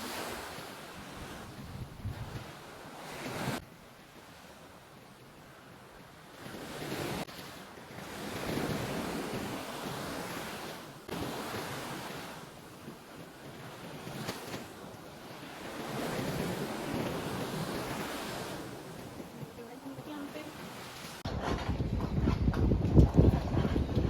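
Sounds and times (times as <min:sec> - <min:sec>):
wind on microphone: 0:00.0 - 0:03.6, 0:07.9 - 0:24.0
sea waves washing onto beach: 0:00.0 - 0:21.3.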